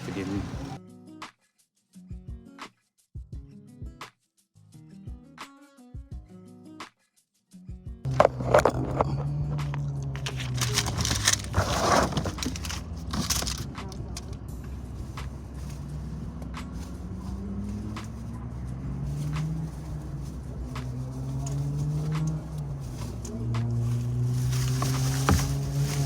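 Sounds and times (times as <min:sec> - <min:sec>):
car engine running: 0:00.0 - 0:00.8, 0:08.1 - 0:26.0
rustling: 0:08.1 - 0:26.0.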